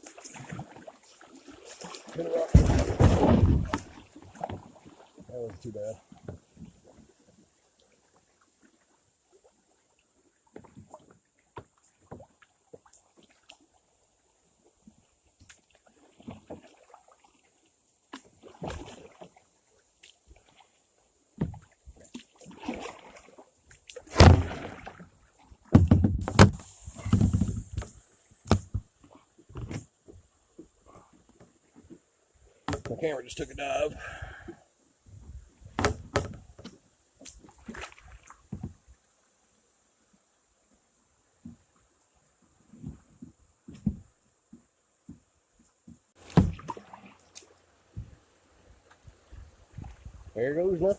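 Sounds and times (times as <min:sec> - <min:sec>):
water splashing: 0:00.0 - 0:29.9, 0:35.6 - 0:38.9, 0:46.2 - 0:50.9
paddle knocking plastic hull: 0:02.1 - 0:05.6, 0:21.4 - 0:21.7, 0:24.1 - 0:25.0, 0:25.6 - 0:28.9, 0:35.6 - 0:36.8, 0:38.4 - 0:38.8, 0:45.9 - 0:46.9, 0:47.9 - 0:48.2
loud thumps and sloshing: 0:02.2 - 0:04.7, 0:24.0 - 0:28.9, 0:46.2 - 0:47.1.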